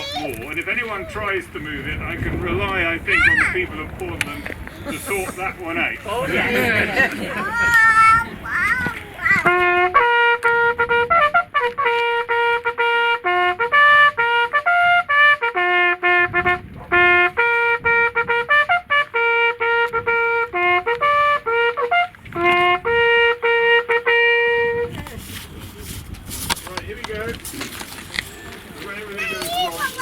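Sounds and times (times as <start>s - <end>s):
solo trumpet call: 9.3s - 25.0s.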